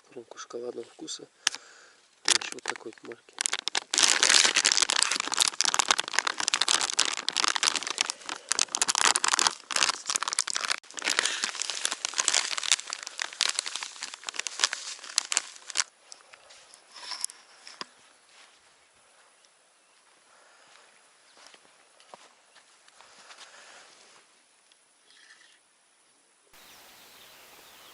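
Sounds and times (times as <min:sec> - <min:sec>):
plastic packet crinkling: 0:02.2 - 0:15.9.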